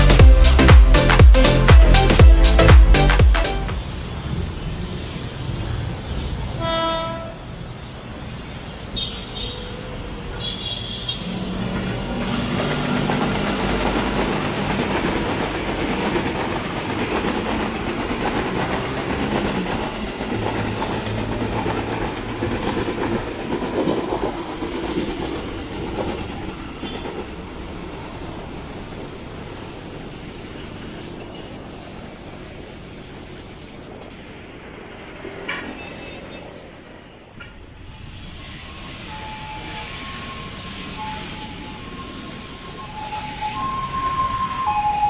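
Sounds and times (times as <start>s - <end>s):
train wheels clattering over rails: 11.2s - 28.6s.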